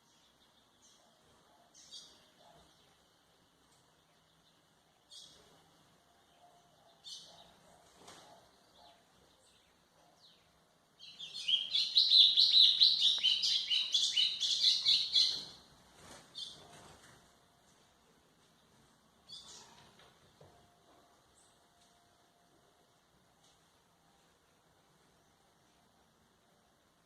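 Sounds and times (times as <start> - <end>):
bird chirping and twittering: 6.2 - 15.6, 19.2 - 19.8.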